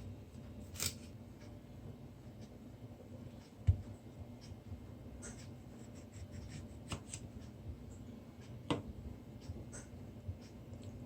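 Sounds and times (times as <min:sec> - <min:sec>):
knife cutting on a cutting board: 0:05.2 - 0:07.3.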